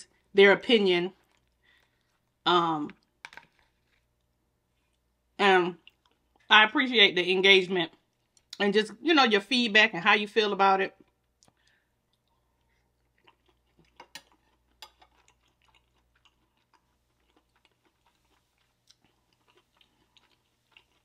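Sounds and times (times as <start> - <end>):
wet chewing clicks and smacks: 11.0 - 21.0.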